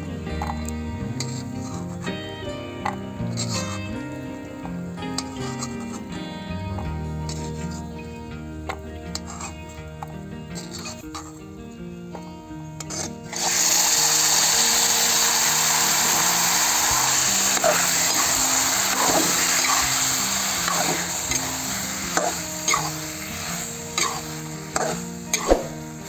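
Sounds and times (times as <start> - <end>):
background music: 0.0 - 26.0
spoon scraping a pan: 0.4 - 2.2, 2.8 - 4.0, 4.7 - 6.2, 6.8 - 7.9, 8.7 - 11.5, 12.2 - 26.0
carrots sizzling in hot oil: 4.6 - 6.0, 8.7 - 9.6, 12.8 - 26.0.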